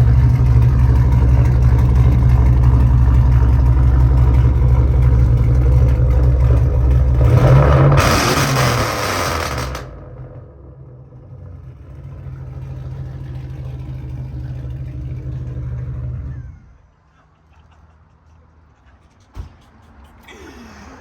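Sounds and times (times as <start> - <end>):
engine running low and steady: 0.0 - 16.9
loud engine revving: 1.2 - 16.5.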